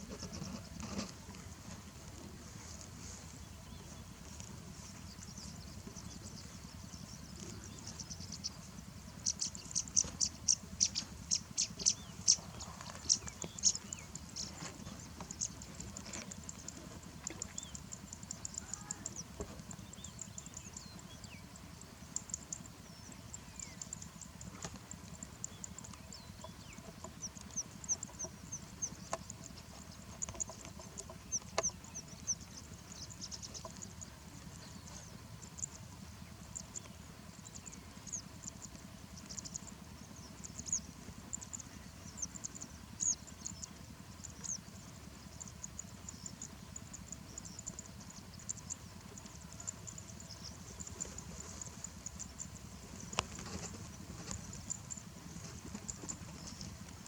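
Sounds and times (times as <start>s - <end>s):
low background rumble: 0.0s - 57.0s
small birds chirping: 0.0s - 57.0s
sharp ticks: 9.2s - 14.5s.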